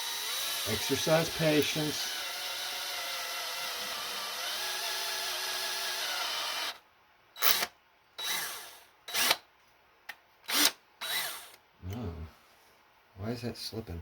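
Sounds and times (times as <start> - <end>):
electric drill boring into metal: 0.0 - 6.8, 7.4 - 9.4, 10.5 - 11.6.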